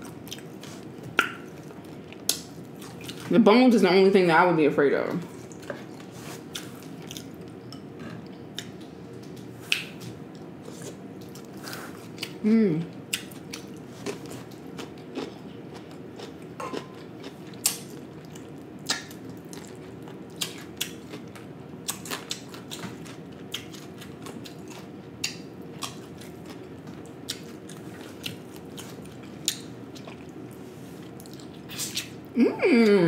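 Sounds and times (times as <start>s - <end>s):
chewing and biting food: 13.1s - 32.2s.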